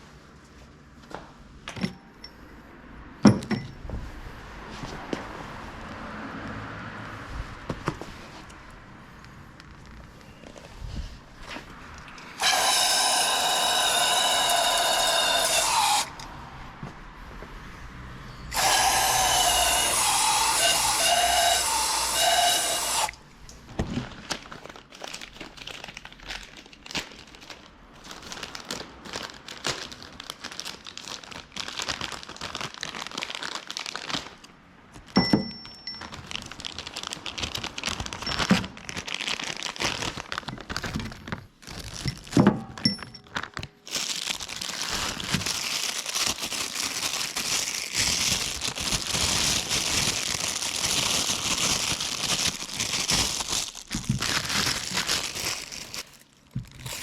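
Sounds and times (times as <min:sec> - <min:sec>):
power tool running: 0:12.4 - 0:16.1, 0:18.5 - 0:23.2.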